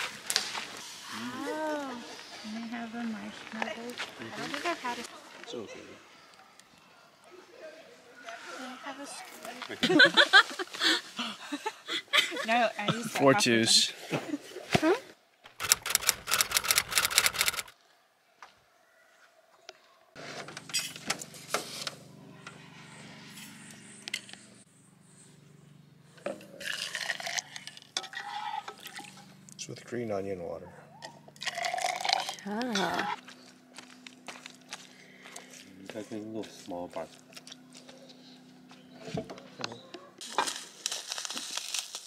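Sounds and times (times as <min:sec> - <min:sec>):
plastic packet crinkling: 0:40.3 - 0:42.0.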